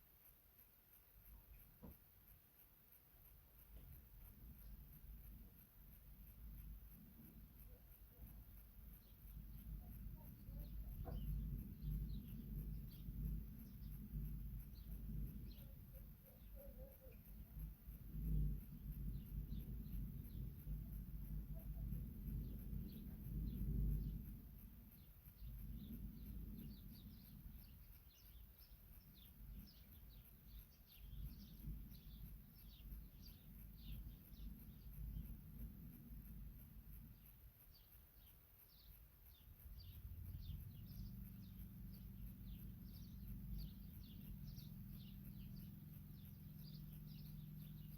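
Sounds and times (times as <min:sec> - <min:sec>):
steady low hum: 0:00.0 - 0:47.9
low rumble: 0:09.3 - 0:16.2, 0:17.2 - 0:27.9, 0:39.6 - 0:47.9.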